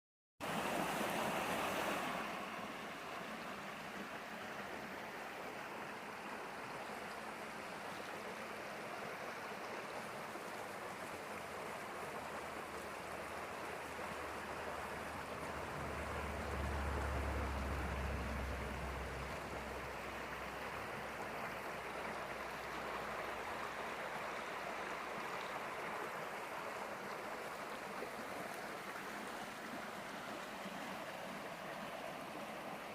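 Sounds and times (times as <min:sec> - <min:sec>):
flowing water rushing: 0:00.4 - 0:32.9
deep low rumble: 0:15.3 - 0:20.6.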